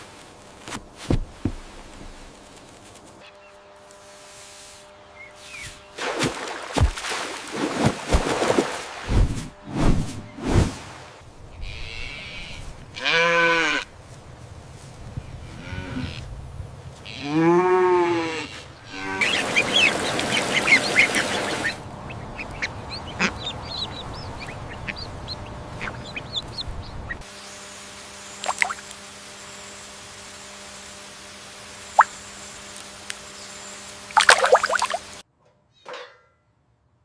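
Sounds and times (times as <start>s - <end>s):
animal calling: 18.0s - 27.2s.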